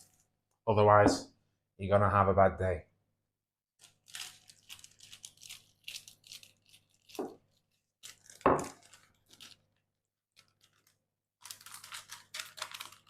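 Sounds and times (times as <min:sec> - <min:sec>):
parchment paper crinkling: 0:03.8 - 0:13.0.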